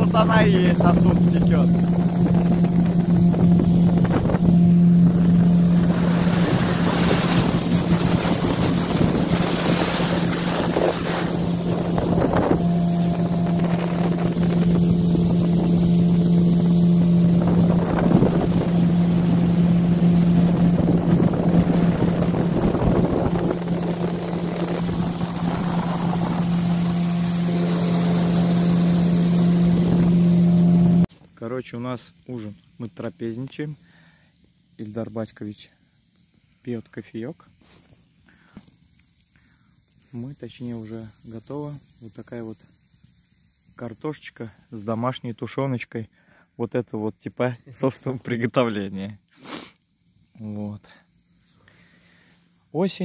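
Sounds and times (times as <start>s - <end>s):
wind buffeting microphone: 0.0s - 30.2s
motorboat engine drone: 0.0s - 31.1s
water rushing: 0.0s - 31.1s.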